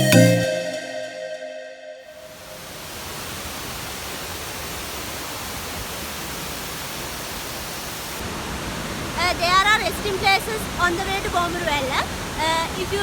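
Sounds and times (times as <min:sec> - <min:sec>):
music track: 0:00.0 - 0:02.5
waterfall rushing: 0:02.2 - 0:13.0.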